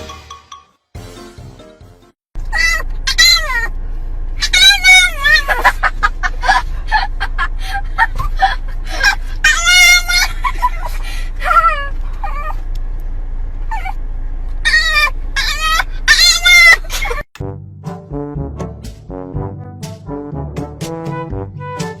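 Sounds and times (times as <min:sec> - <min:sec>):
animal crying out: 0:02.5 - 0:03.7, 0:04.4 - 0:05.9, 0:08.9 - 0:10.8, 0:11.4 - 0:12.6, 0:14.6 - 0:17.2.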